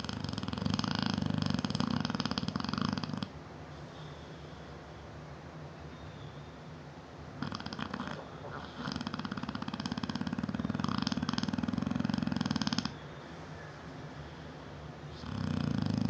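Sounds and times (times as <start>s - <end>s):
dog fluttering snore: 0.0s - 3.3s, 7.4s - 12.9s, 15.2s - 16.0s.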